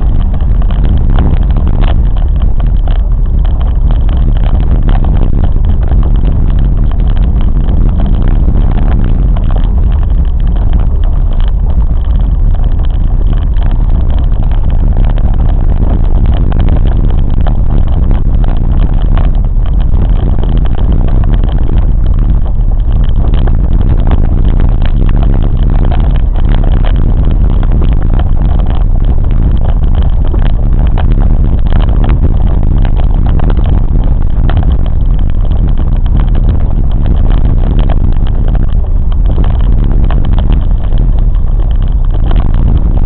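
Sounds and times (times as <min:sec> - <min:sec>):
train rumbling along track: 0:00.0 - 0:43.0.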